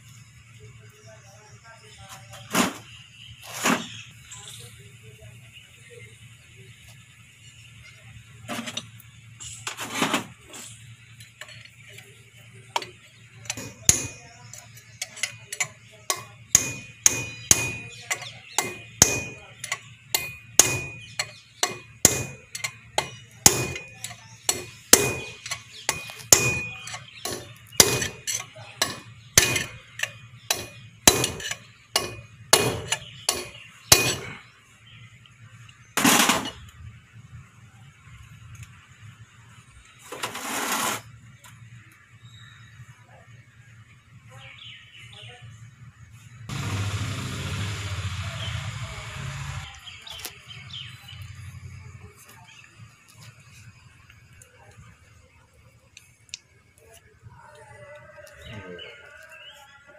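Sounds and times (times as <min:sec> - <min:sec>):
hammer blows on metal: 0:15.1 - 0:34.4
longer rough noise: 0:46.5 - 0:50.0.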